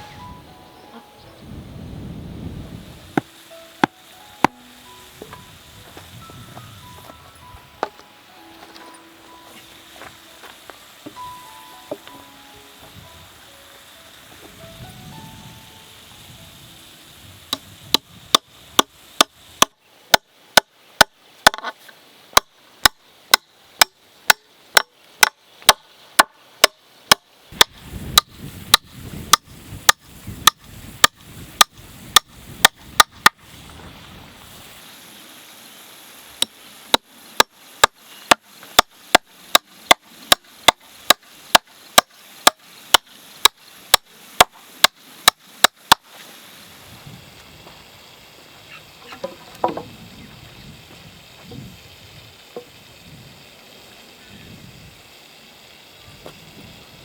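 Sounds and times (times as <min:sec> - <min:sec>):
hand tool striking wood: 0:03.2 - 0:04.6, 0:17.5 - 0:33.4, 0:36.4 - 0:46.1, 0:49.0 - 0:49.9.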